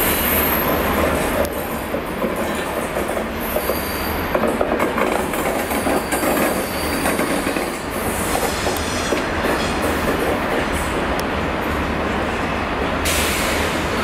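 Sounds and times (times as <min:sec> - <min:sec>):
wheels clicking over rail joints: 0:04.3 - 0:11.2.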